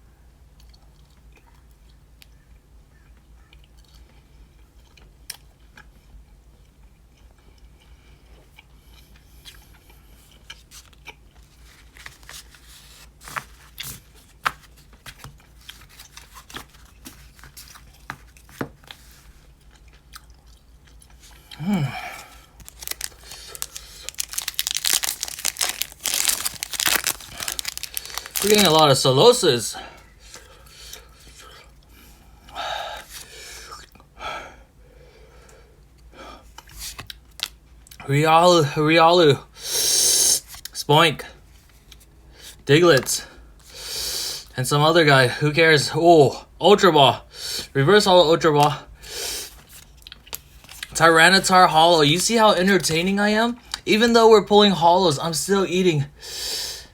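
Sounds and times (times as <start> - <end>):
person chewing jerky: 0.6 - 12.0, 17.8 - 29.4, 49.3 - 51.0
wrapper crinkling and tearing: 22.2 - 29.6, 36.8 - 37.6.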